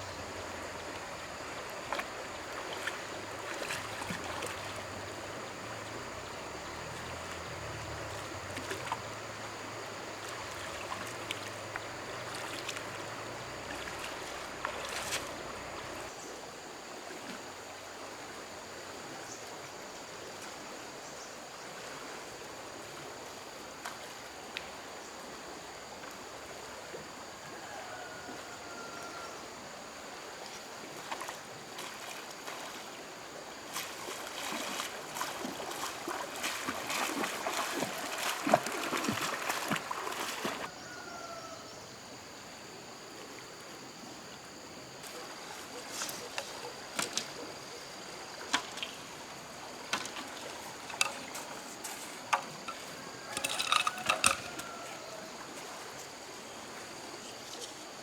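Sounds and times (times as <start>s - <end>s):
stream water rushing: 0.0s - 41.0s, 42.2s - 58.0s
small knocks and clicks: 52.3s - 54.7s.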